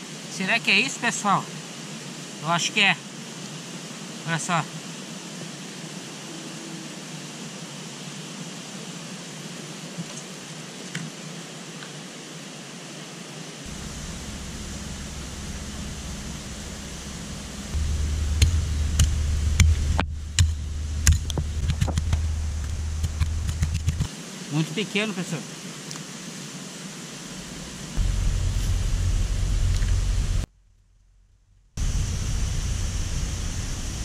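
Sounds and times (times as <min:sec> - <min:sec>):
river water rushing: 0:00.0 - 0:24.6, 0:25.2 - 0:30.1
low rumble: 0:13.7 - 0:24.1, 0:27.3 - 0:34.0
pick chopping into soil: 0:18.3 - 0:24.1.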